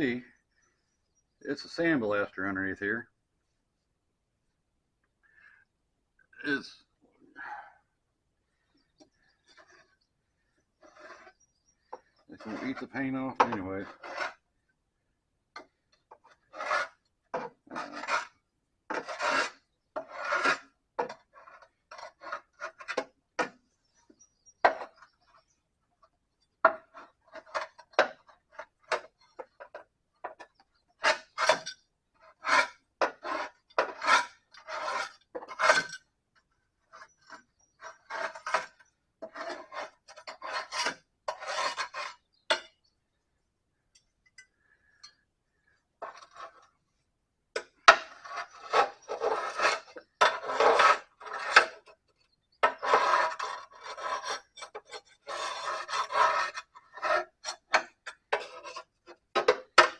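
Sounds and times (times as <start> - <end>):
metal scraper scraping mower deck: 9.3 - 10.1, 10.8 - 14.4, 16.0 - 23.6, 24.6 - 25.6, 26.6 - 36.1, 36.8 - 42.8, 46.0 - 46.7, 47.5 - 59.9.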